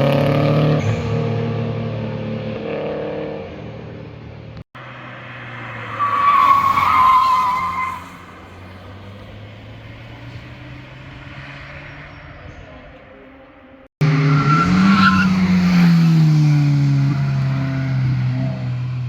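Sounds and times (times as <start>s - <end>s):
car engine: 0.0s - 19.0s
tyres squealing: 5.8s - 8.4s.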